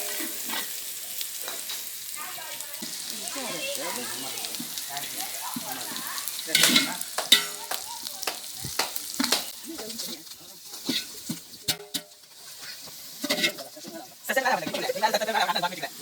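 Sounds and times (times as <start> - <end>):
curry sizzling: 0.0 - 16.0
metal ladle scraping pot: 6.5 - 7.6, 10.7 - 14.0.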